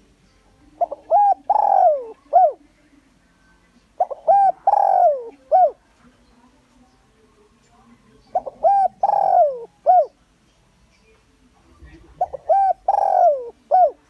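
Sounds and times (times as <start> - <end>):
dove cooing: 0.8 - 2.7, 4.0 - 5.8, 8.2 - 10.2, 11.8 - 14.0.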